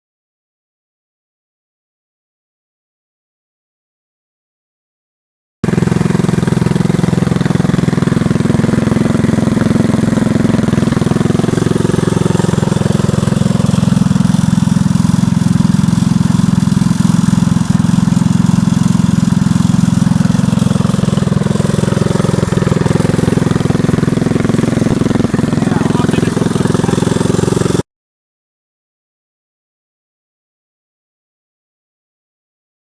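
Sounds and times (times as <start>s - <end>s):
go-kart engine running loud: 5.6s - 27.8s.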